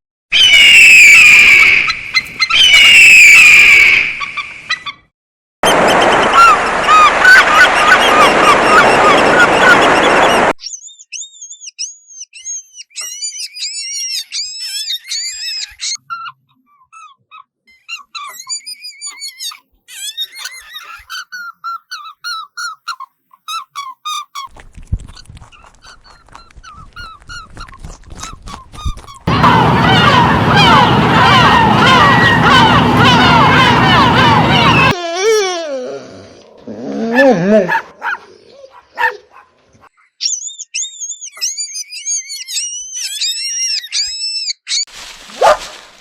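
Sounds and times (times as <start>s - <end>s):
birds chirping: 5.6s - 11.7s, 28.2s - 35.0s.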